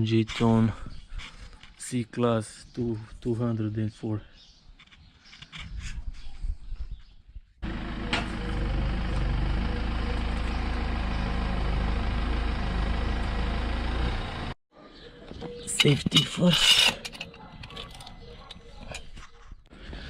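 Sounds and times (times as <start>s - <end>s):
motor running: 7.6s - 14.6s.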